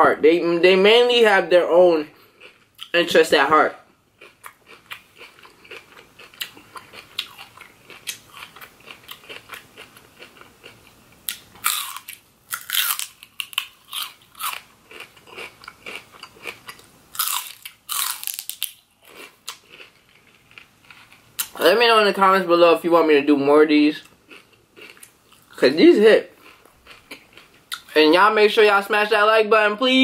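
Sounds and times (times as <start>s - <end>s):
crunching raw vegetable: 4.2s - 21.6s.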